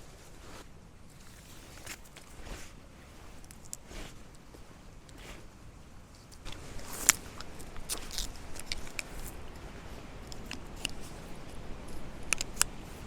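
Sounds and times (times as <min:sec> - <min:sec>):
tarp rustling and clicking: 0:00.0 - 0:05.2, 0:06.2 - 0:09.4.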